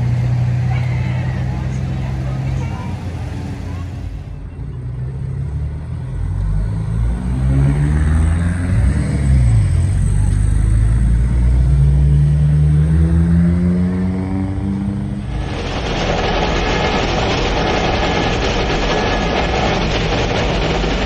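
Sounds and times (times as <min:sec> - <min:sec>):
cars accelerating past: 0:05.2 - 0:17.1.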